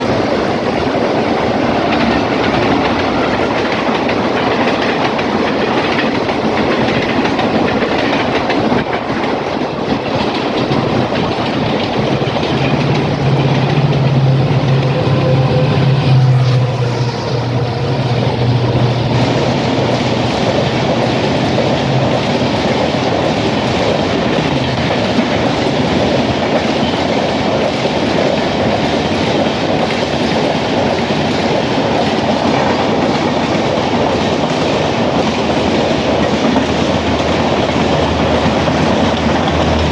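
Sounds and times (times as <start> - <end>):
train wheels rumbling on rails: 0.0 - 39.9
low hum: 12.2 - 21.4.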